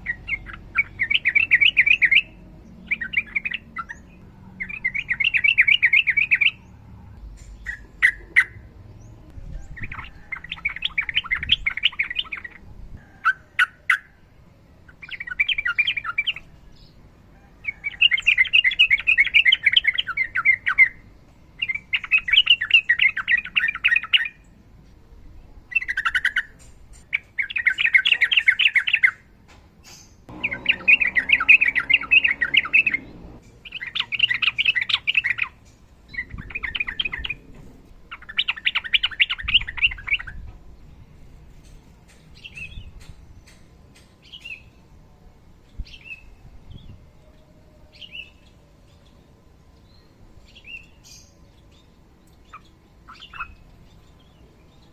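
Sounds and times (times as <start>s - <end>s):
bulbul singing: 0.0s - 12.6s, 29.9s - 37.4s.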